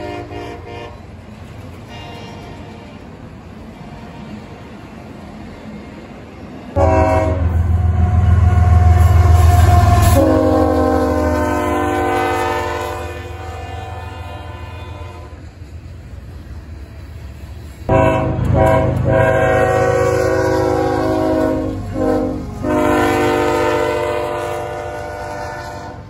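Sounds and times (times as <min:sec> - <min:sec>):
locomotive air horn blast: 0:00.0 - 0:01.1, 0:01.8 - 0:03.0, 0:06.8 - 0:15.4, 0:17.9 - 0:26.0
low train rumble: 0:00.0 - 0:26.0.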